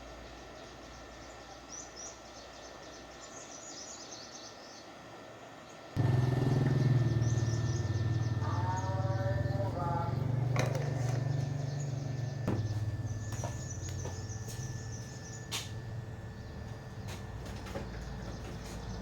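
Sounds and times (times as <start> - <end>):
faint birds chirping: 0.0 - 19.0
speaker low hum: 6.0 - 19.0.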